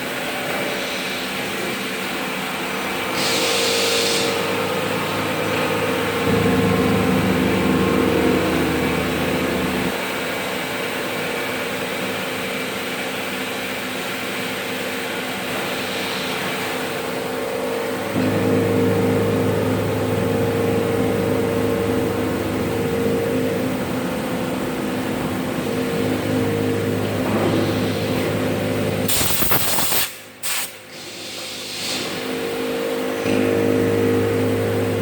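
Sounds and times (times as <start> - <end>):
machine tool humming: 2.6 - 10.1, 16.3 - 29.9, 32.2 - 35.0.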